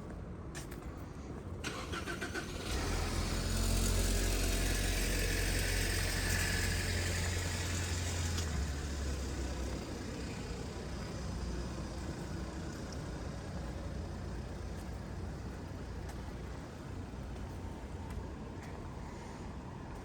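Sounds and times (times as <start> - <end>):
vehicle engine running: 2.4 - 18.2.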